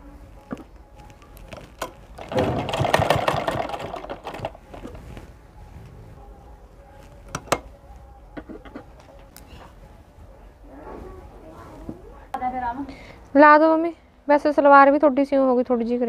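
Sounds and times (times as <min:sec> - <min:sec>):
sewing machine stitching: 0:01.8 - 0:05.0.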